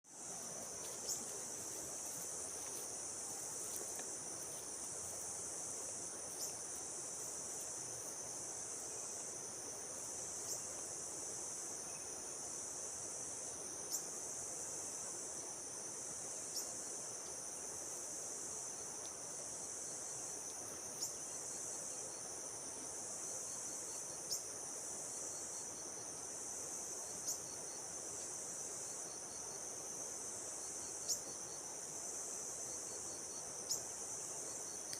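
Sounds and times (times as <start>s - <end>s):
high-pitched insect chorus: 0.1s - 34.9s.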